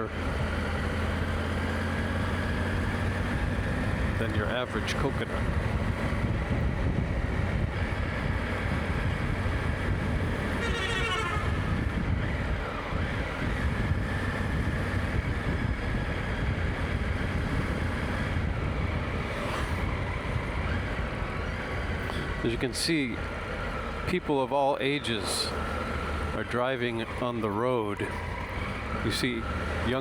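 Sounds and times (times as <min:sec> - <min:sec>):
motorcycle engine and road noise: 0:00.0 - 0:30.0
wind rush on microphone: 0:02.8 - 0:22.5.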